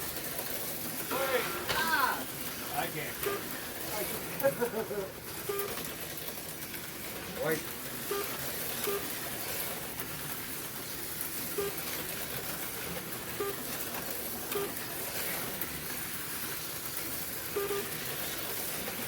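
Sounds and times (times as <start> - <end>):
slot cars whirring and rattling: 0.0 - 19.0
short beeps: 3.2 - 3.4, 17.6 - 17.9.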